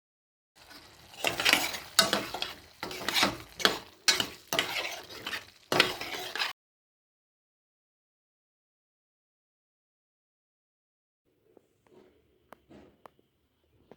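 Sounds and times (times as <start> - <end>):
food sizzling in a hot pan: 0.6 - 6.5
utensil scraping a pan: 0.6 - 6.6.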